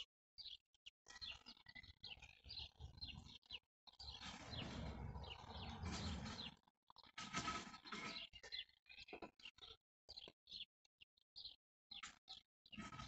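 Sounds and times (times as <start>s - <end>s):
small birds chirping: 0.0s - 13.0s
rustling scraping noise: 4.2s - 6.6s, 7.2s - 8.3s.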